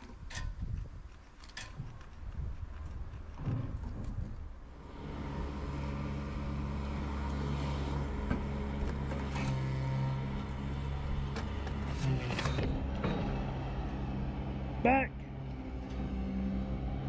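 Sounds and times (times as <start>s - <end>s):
motor droning: 4.7s - 17.0s.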